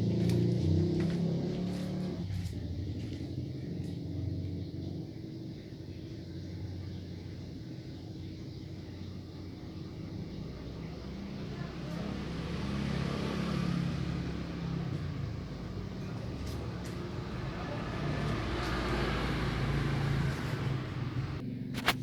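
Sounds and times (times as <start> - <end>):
vehicle engine passing: 0.0 - 22.0.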